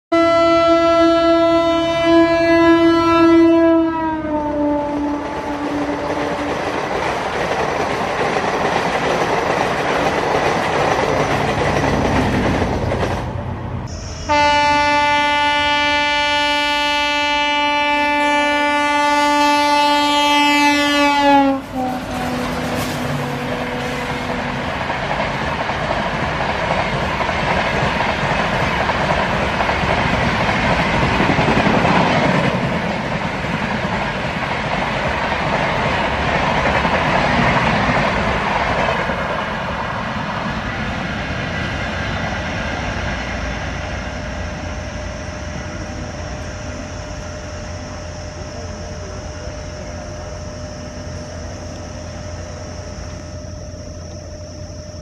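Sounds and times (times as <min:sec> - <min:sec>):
express train rushing past: 0:00.1 - 0:55.0
wheels rattling on rails: 0:05.0 - 0:13.9, 0:19.5 - 0:53.3.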